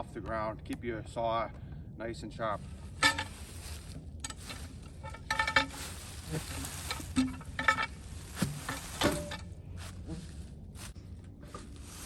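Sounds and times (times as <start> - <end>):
rustling and scraping: 2.5 - 12.0
metal parts clanking: 2.9 - 3.4, 4.2 - 9.5.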